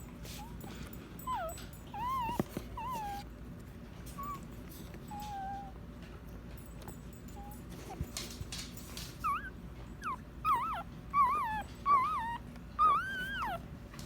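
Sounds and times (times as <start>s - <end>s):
puppy whimpering: 0.3s - 3.3s, 4.1s - 5.8s, 7.3s - 8.4s, 9.0s - 13.7s.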